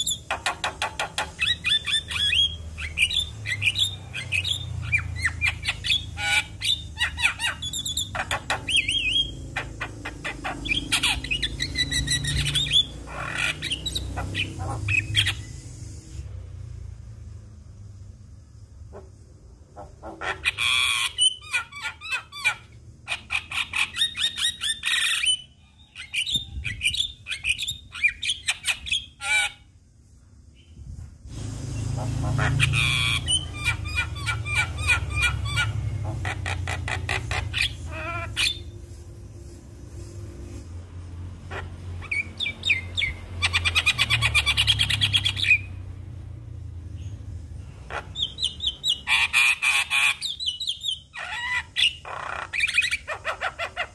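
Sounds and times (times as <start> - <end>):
myna chattering and squawking: 0.0 - 15.6, 19.8 - 25.4, 32.0 - 38.8, 47.9 - 53.9.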